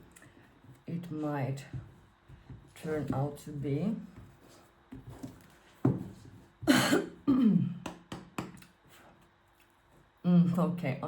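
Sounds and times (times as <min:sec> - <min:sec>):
person coughing: 0:06.6 - 0:07.8
throat clearing: 0:06.7 - 0:07.8.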